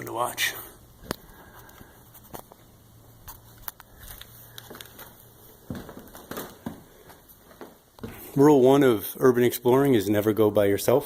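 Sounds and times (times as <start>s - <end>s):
person handling camera: 3.3s - 6.8s.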